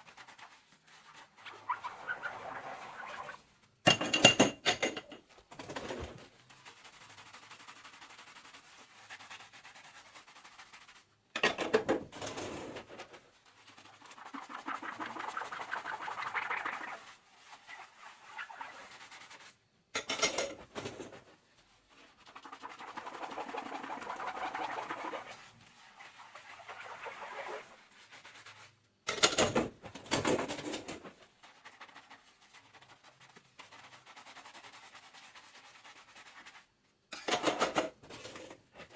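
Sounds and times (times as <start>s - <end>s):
sponge scrubbing: 0.0s - 3.7s, 5.6s - 11.3s, 12.1s - 19.7s, 20.6s - 28.9s, 29.7s - 36.8s
dishes clattering: 3.9s - 5.2s, 11.4s - 12.0s, 20.0s - 20.6s, 37.2s - 38.5s.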